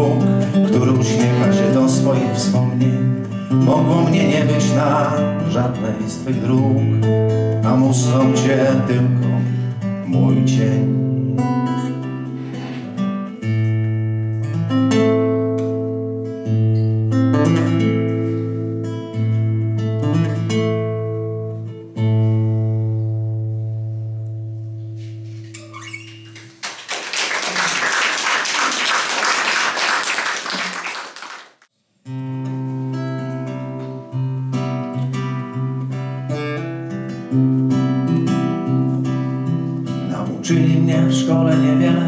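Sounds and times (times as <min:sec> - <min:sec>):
acoustic guitar chords: 0:00.0 - 0:26.6, 0:32.0 - 0:42.0
audience applause: 0:26.6 - 0:31.6.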